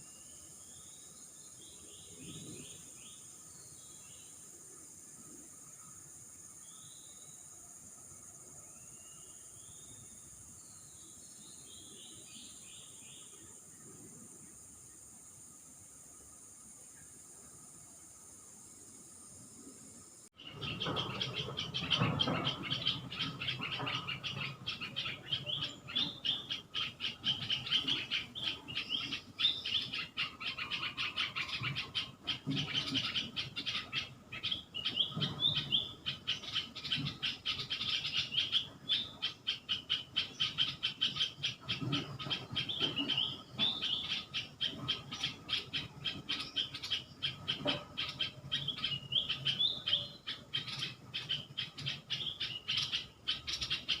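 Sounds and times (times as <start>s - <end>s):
fast pulsing insect chorus: 0.0s - 54.0s
birds calling: 19.6s - 54.0s.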